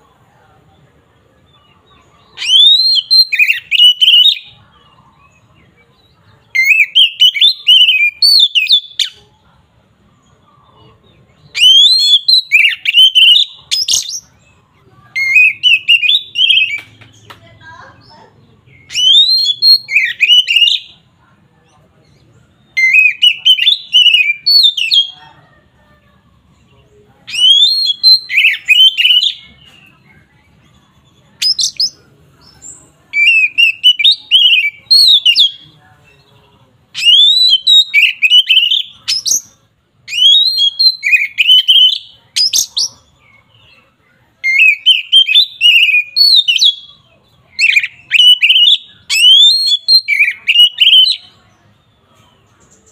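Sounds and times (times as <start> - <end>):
bird singing whistled phrases: 2.3 - 4.6, 6.5 - 9.2, 11.4 - 14.3, 15.2 - 17.0, 18.7 - 21.0, 22.1 - 25.2, 27.3 - 30.0, 32.6 - 36.2, 36.9 - 42.9, 44.4 - 51.4.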